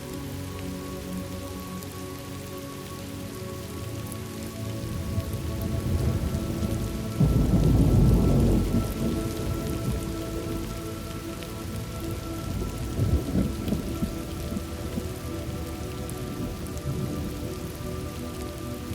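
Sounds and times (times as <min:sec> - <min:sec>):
steady rain: 0:00.0 - 0:18.9
thunder rumbling: 0:04.8 - 0:17.8.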